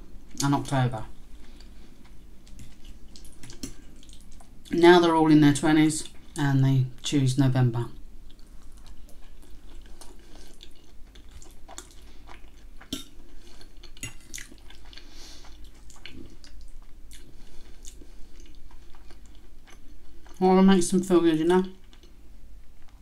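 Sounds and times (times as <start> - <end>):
chewing with wet mouth clicks: 1.5 - 4.8, 8.3 - 20.4, 21.8 - 23.0.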